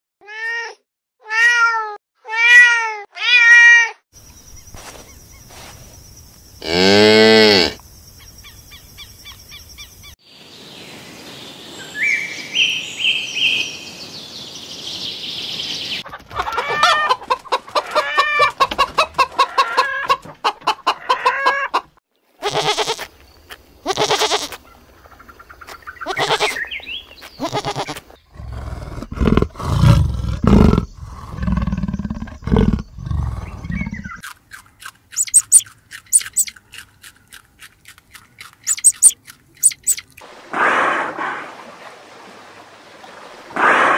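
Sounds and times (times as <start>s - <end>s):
hens clucking: 16.0s - 23.1s, 35.1s - 37.4s, 38.4s - 40.2s
leopard grunting: 28.3s - 34.2s.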